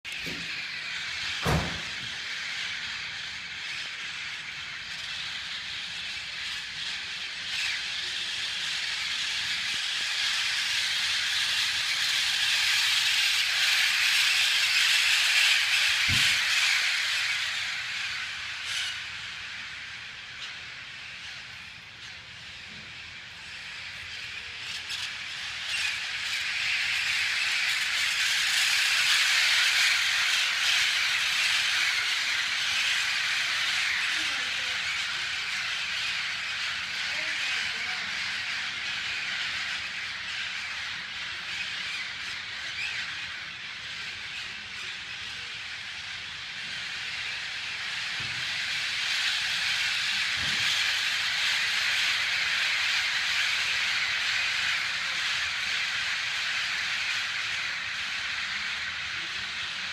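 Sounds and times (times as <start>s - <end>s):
flock of birds chattering: 0.0s - 59.9s
brief thump: 1.4s - 1.9s.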